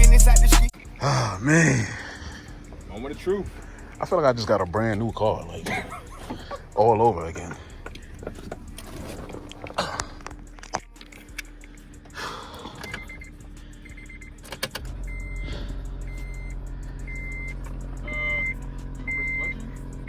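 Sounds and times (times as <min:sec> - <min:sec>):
car engine starting and idling: 0:00.0 - 0:20.0
keys rattling in ignition: 0:01.7 - 0:20.0
dashboard chime beeping: 0:16.1 - 0:19.7.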